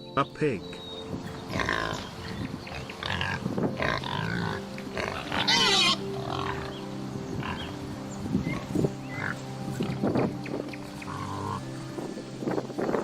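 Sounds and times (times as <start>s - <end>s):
pig grunting and squealing: 1.5s - 6.7s.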